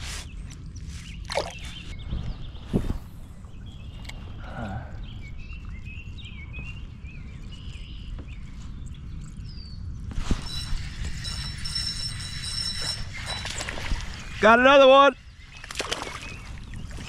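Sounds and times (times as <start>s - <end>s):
birds chirping: 0.2s - 17.0s.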